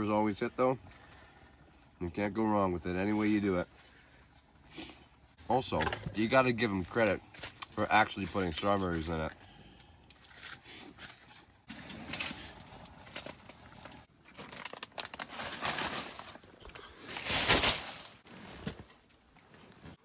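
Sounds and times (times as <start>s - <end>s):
plastic pouch crinkling: 13.2s - 16.6s.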